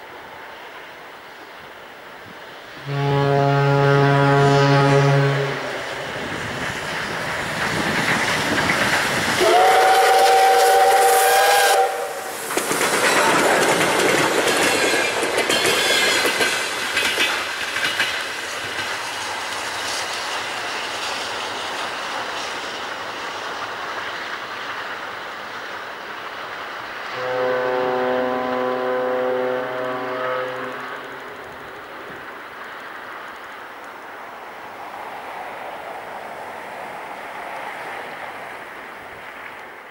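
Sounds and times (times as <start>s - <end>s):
steam locomotive passing: 0.0s - 39.9s
steam whistle blast: 2.8s - 5.8s, 9.4s - 12.3s, 27.1s - 31.1s
carriages clattering over rail joints: 6.4s - 9.4s, 12.4s - 25.2s.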